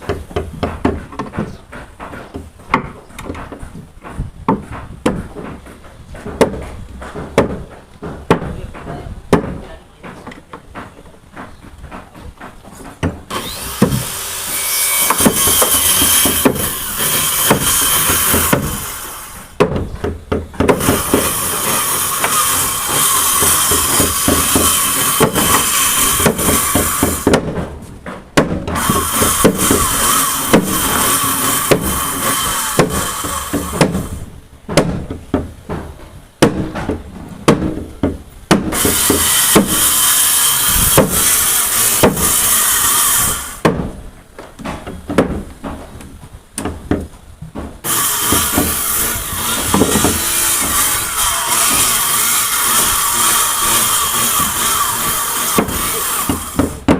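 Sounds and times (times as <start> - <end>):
electric power tool on wood: 13.3 - 19.6, 20.7 - 27.4, 28.7 - 34.3, 38.7 - 43.6, 47.8 - 56.9.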